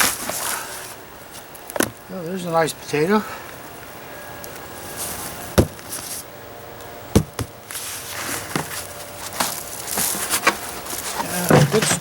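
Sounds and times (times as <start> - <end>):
soil scraping and rustling: 0.0 - 3.0, 4.2 - 6.4, 7.6 - 12.0
sharp knocks: 5.6 - 5.8, 7.2 - 7.6.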